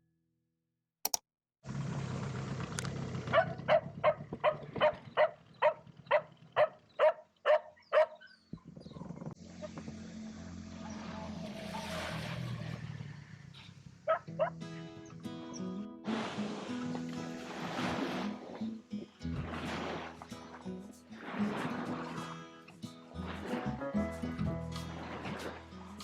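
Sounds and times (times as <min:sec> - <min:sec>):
small engine humming: 0:01.7 - 0:06.9, 0:09.3 - 0:14.4
dog barking: 0:03.3 - 0:08.4, 0:14.1 - 0:14.6.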